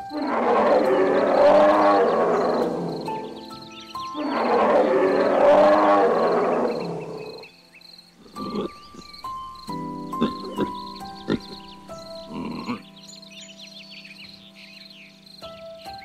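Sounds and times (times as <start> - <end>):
elephant calling: 0.0 - 7.5, 8.2 - 13.0
music with sustained notes: 0.0 - 16.0.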